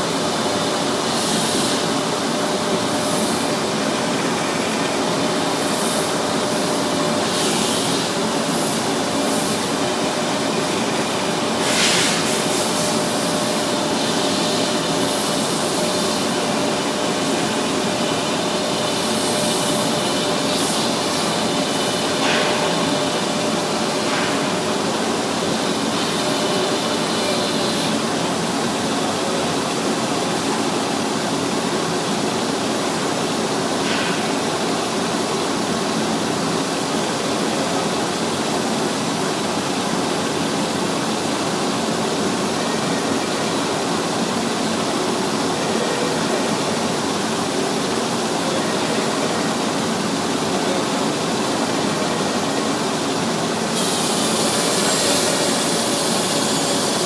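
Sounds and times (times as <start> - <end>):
sanding machine hiss: 53.6 - 57.0.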